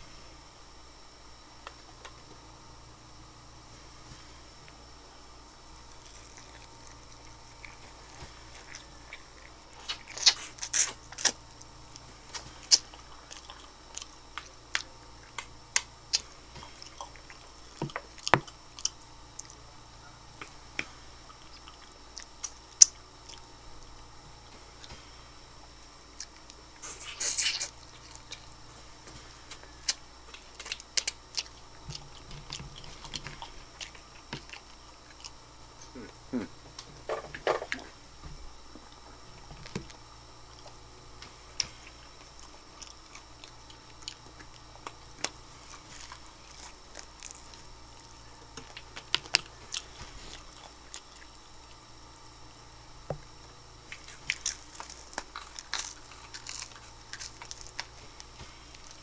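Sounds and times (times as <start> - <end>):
person chewing chicken wings: 5.9 - 19.6, 26.2 - 38.0, 38.7 - 51.8, 53.9 - 59.0.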